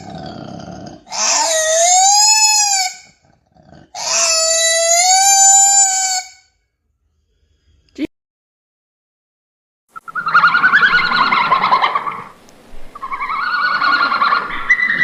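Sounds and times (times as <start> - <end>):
animal crying calls: 0.0 - 6.5, 10.0 - 15.0.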